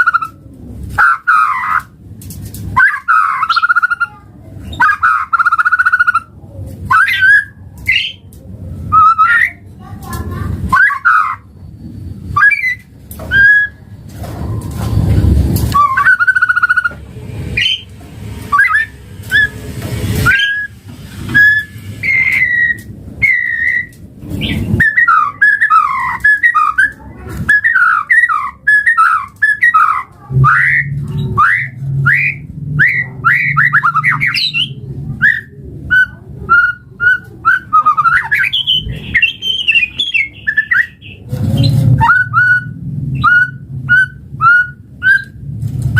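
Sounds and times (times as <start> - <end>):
bird singing whistled notes: 12.4 - 13.8, 15.7 - 17.0, 17.6 - 17.9, 18.5 - 19.6, 20.2 - 45.4.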